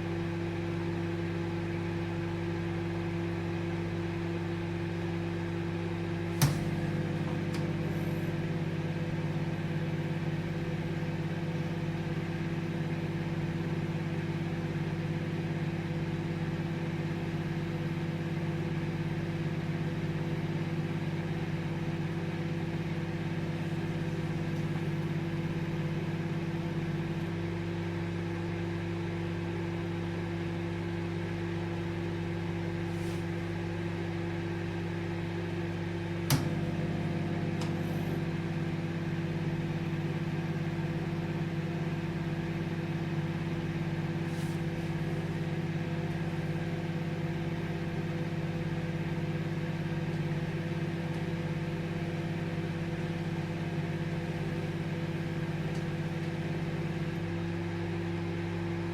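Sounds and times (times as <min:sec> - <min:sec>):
microwave oven hum and fan: 0:00.0 - 0:58.9.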